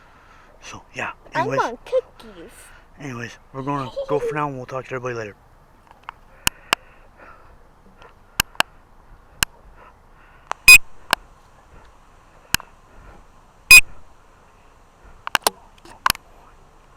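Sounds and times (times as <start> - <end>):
short loud beeps: 13.7 - 13.9.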